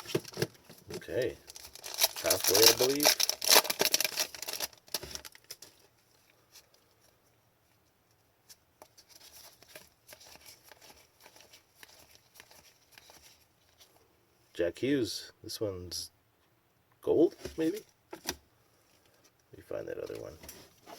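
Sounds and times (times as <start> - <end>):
wrapper crinkling and tearing: 0.0 - 5.7
cards clicking and rustling: 0.0 - 5.8, 8.8 - 13.4.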